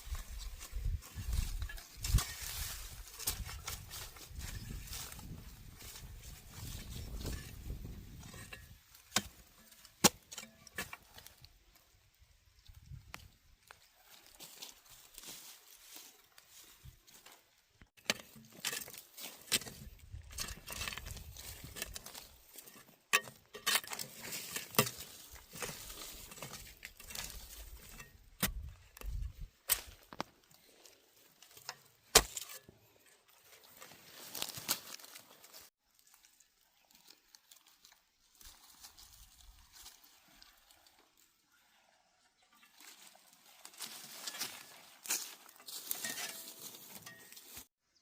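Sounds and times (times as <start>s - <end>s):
dry corn leaves rustling: 0.0s - 41.6s, 42.5s - 47.7s
corn stalks snapping: 28.4s - 30.3s, 32.1s - 32.6s.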